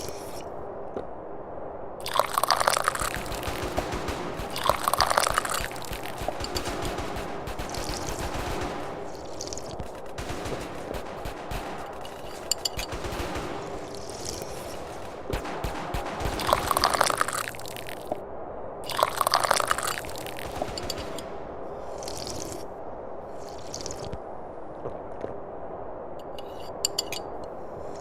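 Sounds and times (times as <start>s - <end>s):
slurping tea: 21.9s - 22.6s, 23.4s - 24.1s.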